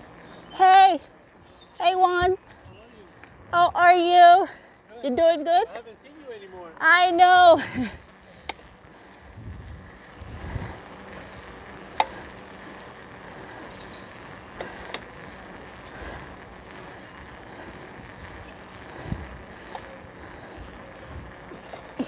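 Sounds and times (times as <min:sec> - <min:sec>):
bicycle tyres rolling: 0:00.0 - 0:22.0
wind noise: 0:09.2 - 0:11.7, 0:16.0 - 0:21.6
sharp clicks: 0:11.2 - 0:20.8
faint bird chirps: 0:13.6 - 0:14.3.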